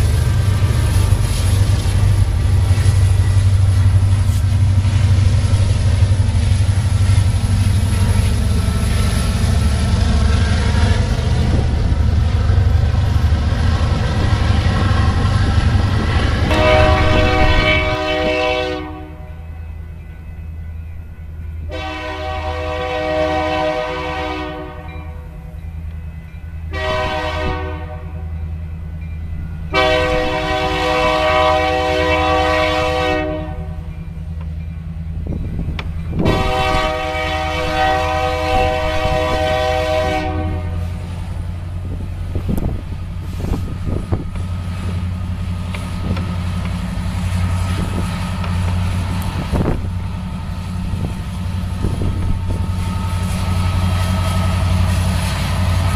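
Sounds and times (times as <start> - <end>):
locomotive engine running: 0.0 - 18.4, 28.1 - 55.9
train clanks: 0.0 - 55.9
train wheels on rails: 0.0 - 55.9
locomotive air horn blasts: 16.4 - 19.4, 21.7 - 25.2, 26.7 - 28.4, 29.7 - 33.9, 36.2 - 41.0.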